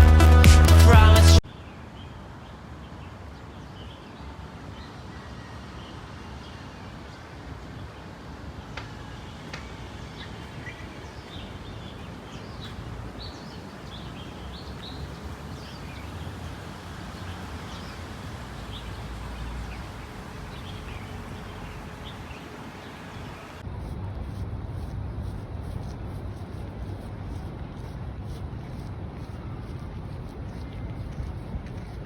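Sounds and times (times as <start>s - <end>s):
low rumbling noise: 9.7s - 32.0s.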